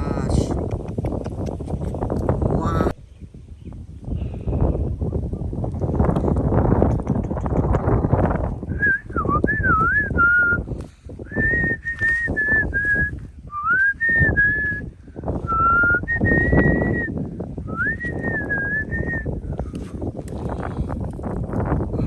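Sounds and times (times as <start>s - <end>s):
microphone handling noise: 0.0s - 22.0s
wind rumble: 0.0s - 22.0s
person whistling a tune: 8.8s - 10.6s, 11.3s - 14.9s, 15.5s - 19.3s.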